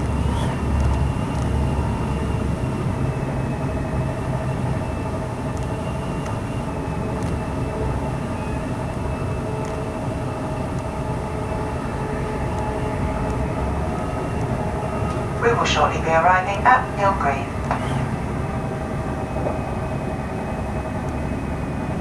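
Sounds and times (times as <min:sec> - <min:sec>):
train rumbling on rails: 0:00.0 - 0:22.0
thin steady whine: 0:11.7 - 0:20.8.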